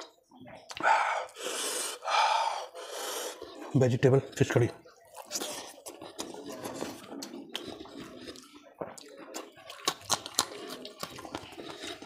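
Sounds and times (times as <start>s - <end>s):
wet chewing and lip-smacking: 5.0s - 12.0s.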